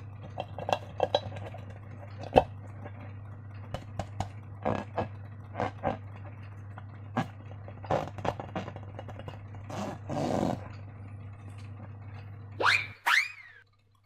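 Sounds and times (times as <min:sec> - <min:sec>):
low steady hum: 0:00.0 - 0:14.0
sharp rising squeak: 0:12.6 - 0:13.6.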